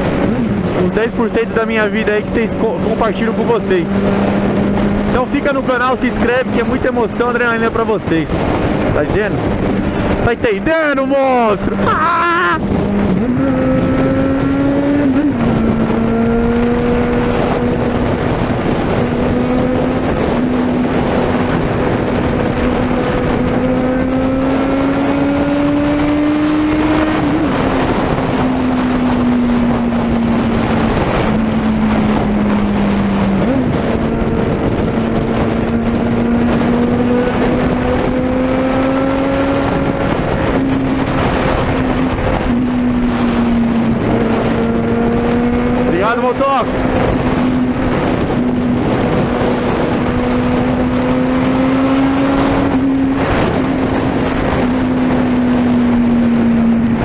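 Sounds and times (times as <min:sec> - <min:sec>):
motorcycle engine running loud: 0:00.0 - 0:57.0.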